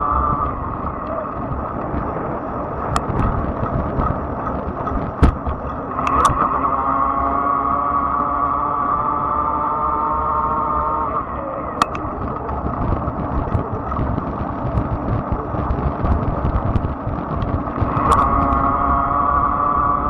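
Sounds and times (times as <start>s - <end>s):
wind: 0.0s - 20.0s
sharp ticks: 2.8s - 6.5s, 11.8s - 18.8s
electric motor whining: 4.2s - 20.0s.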